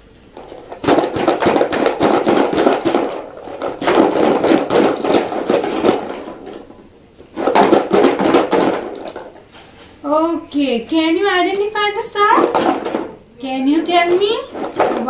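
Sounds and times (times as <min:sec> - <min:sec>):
key rattling in shaken box: 0:00.4 - 0:06.7.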